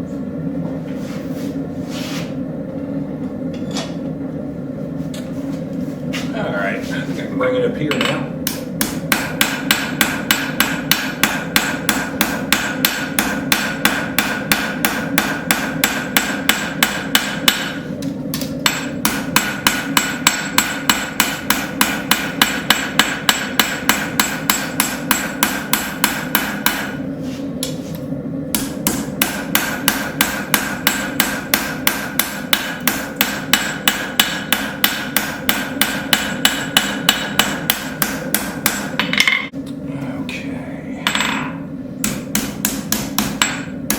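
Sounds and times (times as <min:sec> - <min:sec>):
steady hum: 0:00.0 - 0:43.9
hammer striking hot steel: 0:07.9 - 0:27.8, 0:28.5 - 0:39.6, 0:41.1 - 0:43.9.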